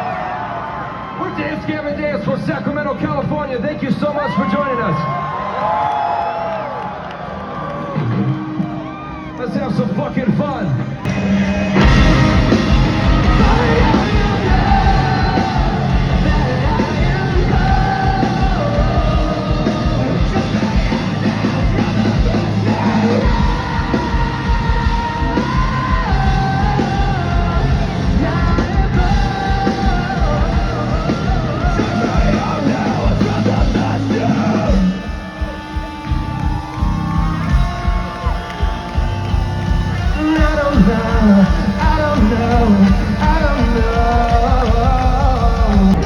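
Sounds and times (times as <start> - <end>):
rock band playing live: 10.3 - 46.0
sung and yelled vocals: 10.5 - 46.0.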